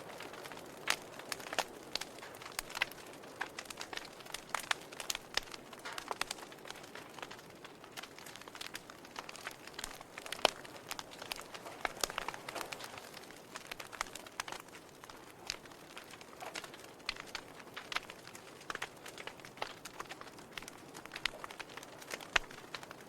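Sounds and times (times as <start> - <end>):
logs crackling in a fireplace: 0.0 - 23.0.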